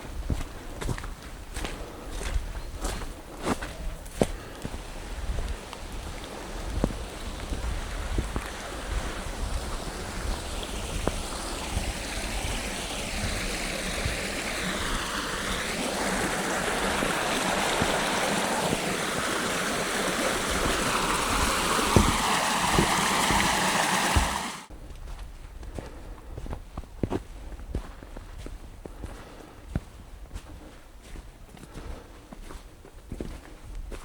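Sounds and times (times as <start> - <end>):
stream water rushing: 4.6 - 24.7.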